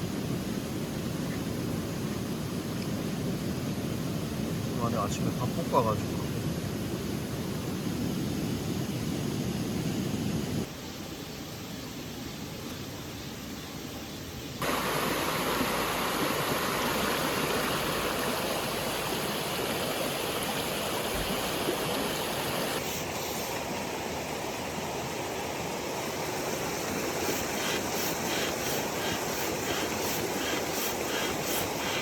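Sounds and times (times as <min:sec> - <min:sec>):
stream water rushing: 0:14.6 - 0:32.0.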